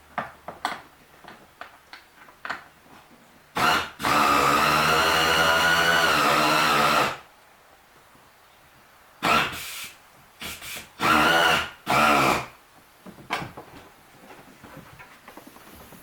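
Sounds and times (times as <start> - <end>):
pneumatic air ratchet whining: 3.6 - 7.2, 9.2 - 12.5.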